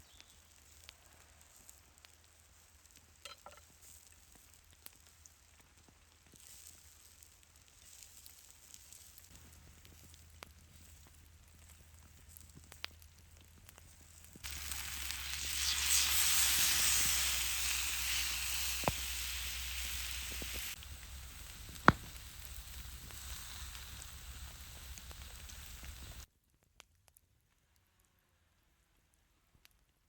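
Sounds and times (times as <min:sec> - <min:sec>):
food sizzling over fire: 0:00.0 - 0:26.3
sharp tap: 0:21.4 - 0:23.2.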